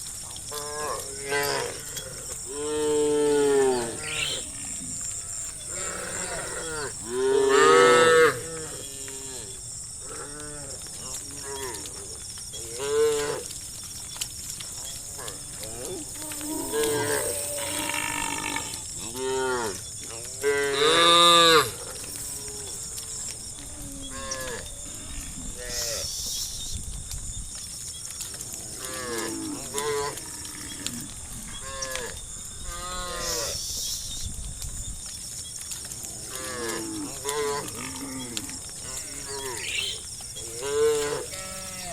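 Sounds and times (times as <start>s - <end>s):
cattle mooing: 2.5s - 8.8s, 37.3s - 41.9s.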